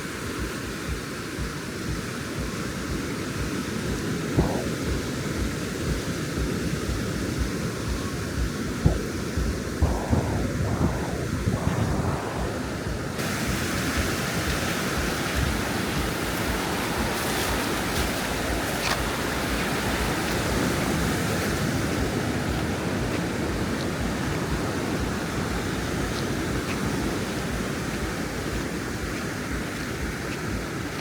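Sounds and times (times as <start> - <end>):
ocean surf breaking on beach: 0.0 - 31.0.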